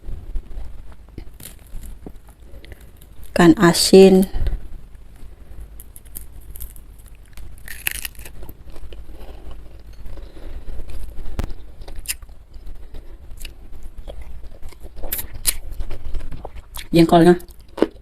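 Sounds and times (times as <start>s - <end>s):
chewing and crunching: 5.7s - 18.0s.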